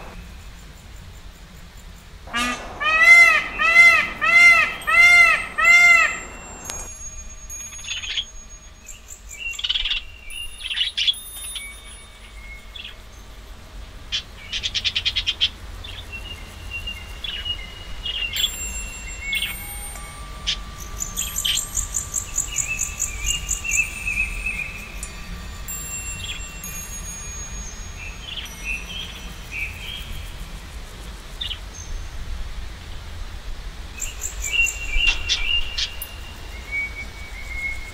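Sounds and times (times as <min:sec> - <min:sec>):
bird calling loudly: 0:02.3 - 0:06.9
birdsong chirps and whistles: 0:02.3 - 0:30.6, 0:34.0 - 0:37.9.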